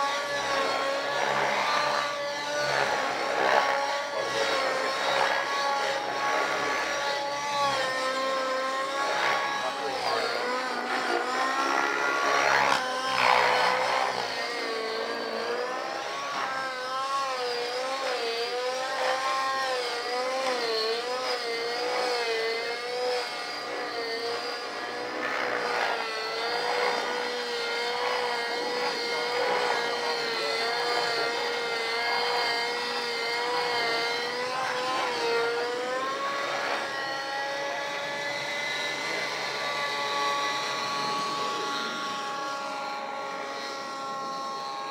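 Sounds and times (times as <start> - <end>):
model helicopter motor whine: 0.0 - 44.9.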